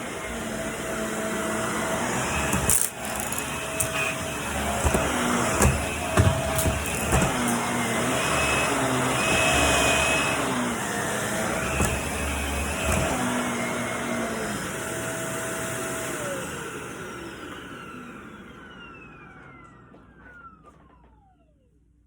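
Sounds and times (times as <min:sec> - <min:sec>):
vacuum cleaner running: 0:00.0 - 0:21.7
motor winding down whine: 0:00.2 - 0:15.3.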